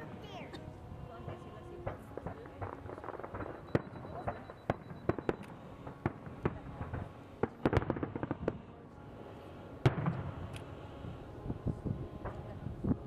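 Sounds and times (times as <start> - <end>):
fireworks bangs and cracks: 1.3 - 8.6, 9.8 - 10.4.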